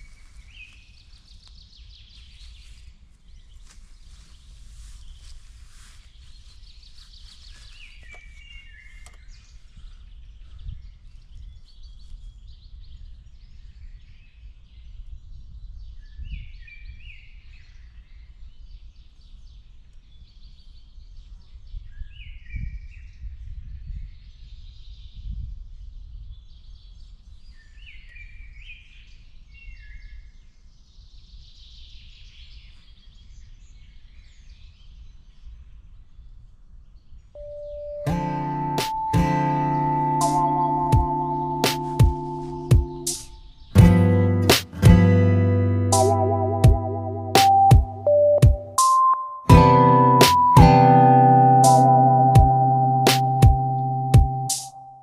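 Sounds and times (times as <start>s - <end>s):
fainter birdsong: 0.0s - 13.4s, 31.8s - 55.0s
bird repeating falling notes: 45.9s - 54.8s.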